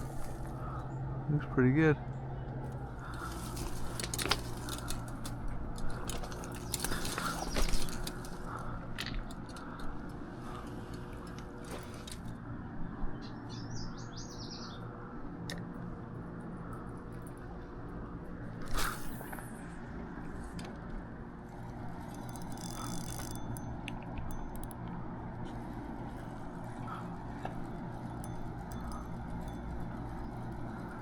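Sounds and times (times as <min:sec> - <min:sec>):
faint low background hum: 0:00.0 - 0:31.0
rustling and clicking: 0:02.7 - 0:12.4
small bird chirping: 0:06.5 - 0:08.3, 0:13.1 - 0:14.9.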